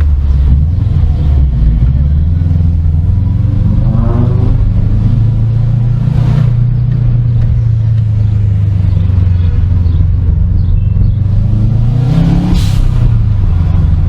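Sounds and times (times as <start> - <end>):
car engine droning: 0.0 - 14.0
brief rushing swell: 3.6 - 5.2.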